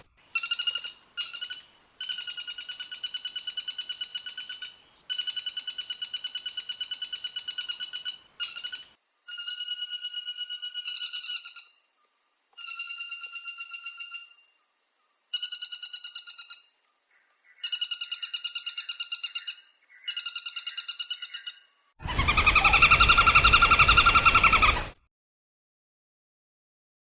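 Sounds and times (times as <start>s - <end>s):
woodpecker rattling trills: 0.0s - 11.8s, 17.6s - 25.0s.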